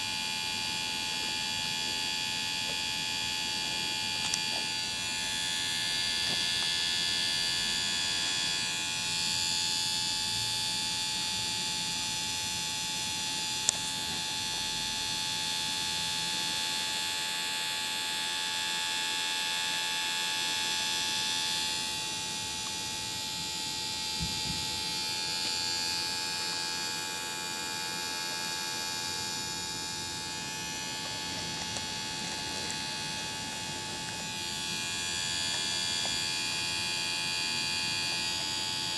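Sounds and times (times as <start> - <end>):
electric motors whining: 0.1 - 9.5, 20.4 - 38.9.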